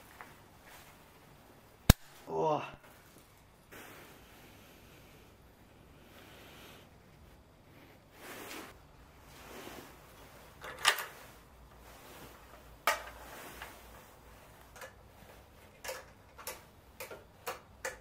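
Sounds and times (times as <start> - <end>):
sharp clicks: 1.9 - 2.2.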